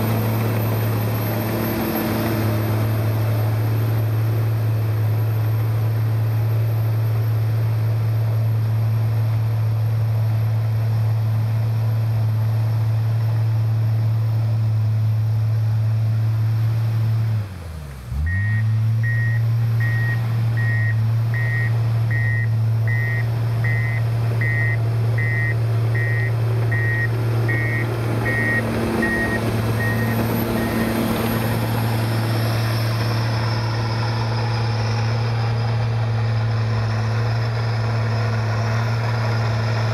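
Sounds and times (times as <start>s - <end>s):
bulldozer diesel engine: 0.0s - 39.9s
backup alarm beeping: 18.3s - 31.0s.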